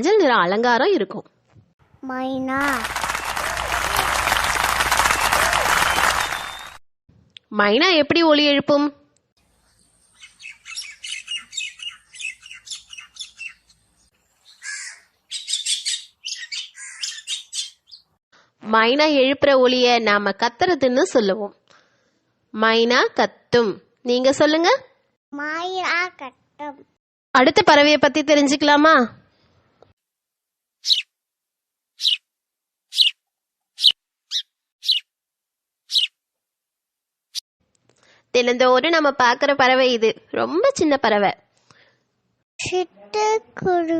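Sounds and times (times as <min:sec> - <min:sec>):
sparrow chirping: 0:09.6 - 0:18.2, 0:30.8 - 0:31.1, 0:32.0 - 0:32.2, 0:32.9 - 0:33.2, 0:33.8 - 0:35.1, 0:35.9 - 0:36.1
myna calling: 0:14.5 - 0:17.8.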